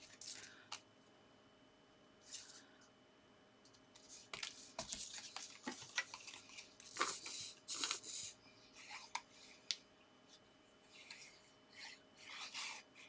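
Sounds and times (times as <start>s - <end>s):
paper rustling and crinkling: 3.9s - 7.2s.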